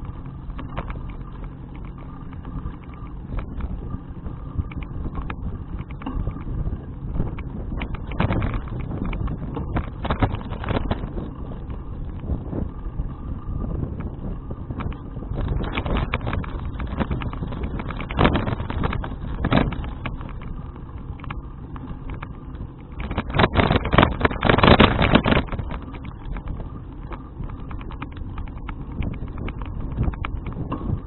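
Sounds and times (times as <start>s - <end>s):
bicycle clicks and rattles: 0.0s - 31.0s
wind on microphone: 0.0s - 31.0s.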